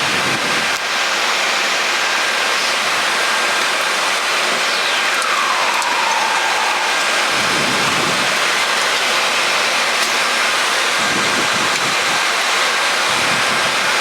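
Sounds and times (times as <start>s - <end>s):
whistle-like tone sliding down: 4.1s - 8.3s.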